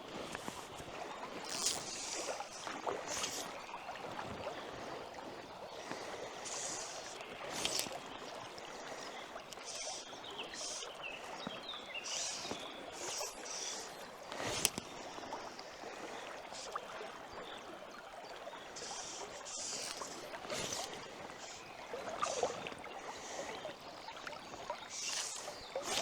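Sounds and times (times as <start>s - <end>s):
water splashing around legs: 0.0s - 26.0s
river current rushing: 24.4s - 26.0s.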